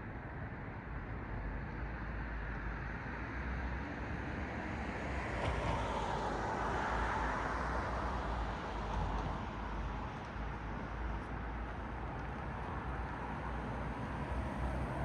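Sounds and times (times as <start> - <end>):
low traffic rumble: 10.6 - 15.0
car passing: 13.8 - 15.0.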